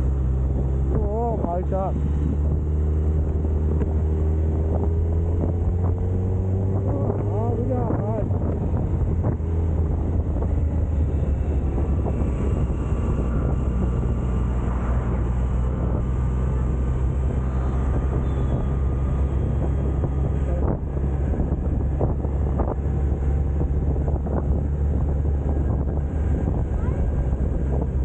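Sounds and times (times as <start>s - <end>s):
motorcycle engine running: 0.0s - 28.0s
wind buffeting microphone: 0.0s - 28.0s.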